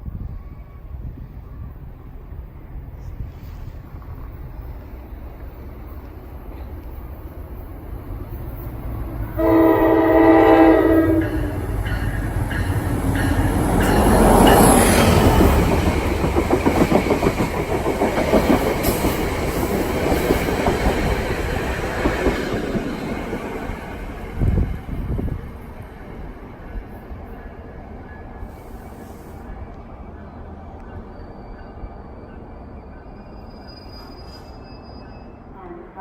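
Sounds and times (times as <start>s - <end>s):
train rumbling past: 0.0s - 36.0s
train horn blast: 9.3s - 11.8s, 35.5s - 36.0s.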